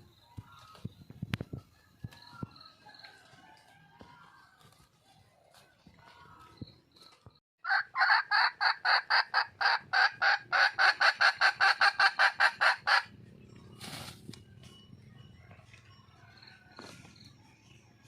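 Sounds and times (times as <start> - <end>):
hen cackling: 7.6 - 13.1.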